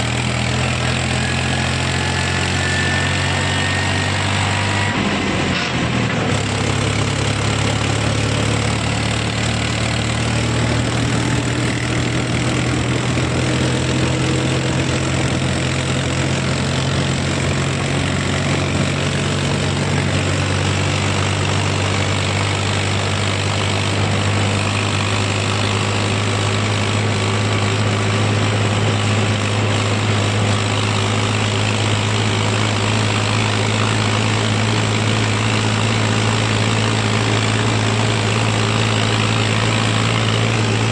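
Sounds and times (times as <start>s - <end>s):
tractor diesel engine humming: 0.0s - 40.9s.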